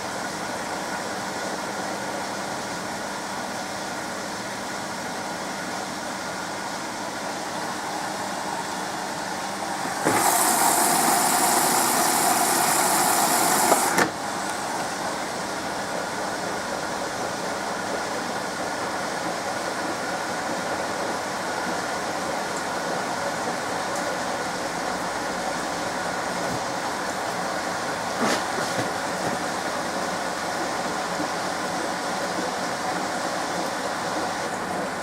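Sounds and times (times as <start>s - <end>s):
washing machine running: 0.0s - 35.0s
water filling hiss: 8.0s - 15.3s.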